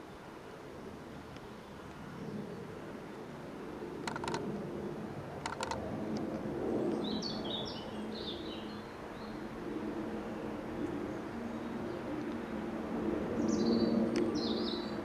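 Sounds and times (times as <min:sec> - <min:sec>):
sharp clicks: 0:04.0 - 0:04.4, 0:05.4 - 0:05.8.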